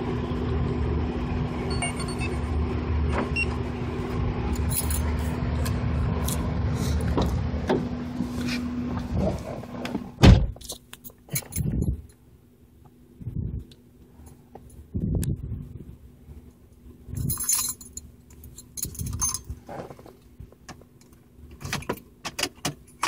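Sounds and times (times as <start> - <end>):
car engine idling: 0.0 - 10.2
car door shutting: 8.9 - 10.6.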